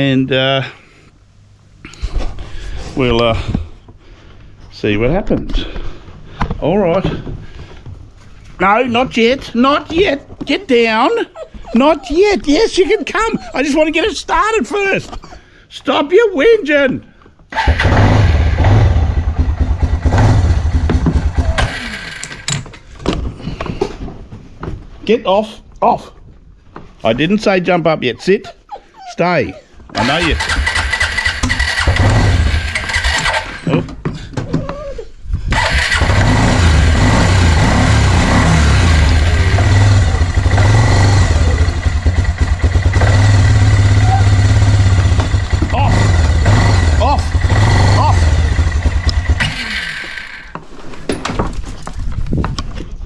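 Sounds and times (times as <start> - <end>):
quad bike engine running: 17.7 - 22.5, 30.0 - 33.6, 35.5 - 50.5.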